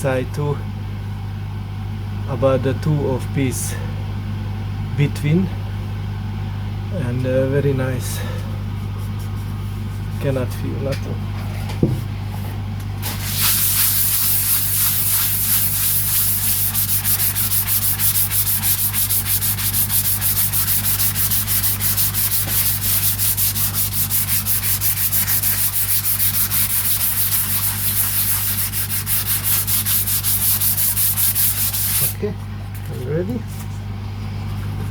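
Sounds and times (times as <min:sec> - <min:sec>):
steady low hum: 0:00.0 - 0:34.9
sandpaper rubbing on wood: 0:13.0 - 0:32.2.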